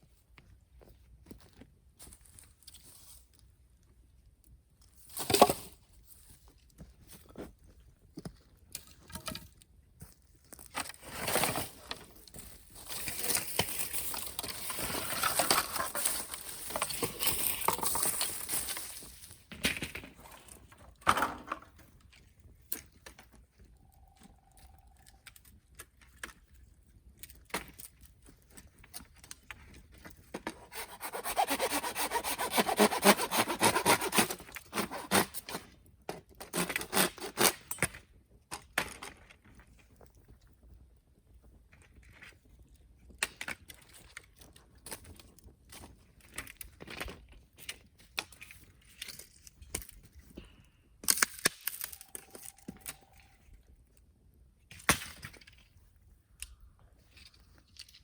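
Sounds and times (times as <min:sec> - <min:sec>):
hand saw cutting bamboo: 0:30.4 - 0:35.7, 0:36.4 - 0:37.7.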